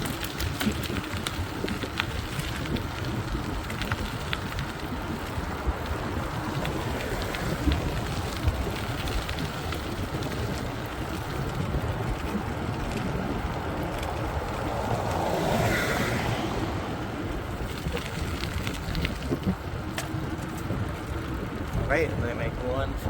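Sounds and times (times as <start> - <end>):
road rumble: 0.0 - 23.0
wind on microphone: 0.0 - 23.0.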